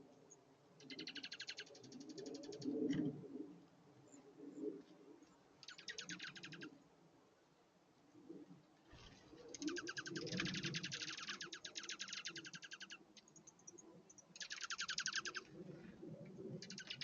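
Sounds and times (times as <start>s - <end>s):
songbird trilling: 0.8s - 2.6s, 5.6s - 6.7s, 9.5s - 13.0s, 14.4s - 15.5s, 16.6s - 17.0s.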